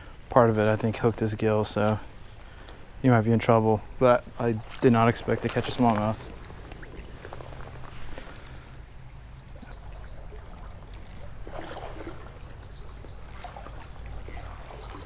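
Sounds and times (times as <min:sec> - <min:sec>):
creek water trickling: 0:00.0 - 0:15.0
water splashing: 0:04.2 - 0:15.0.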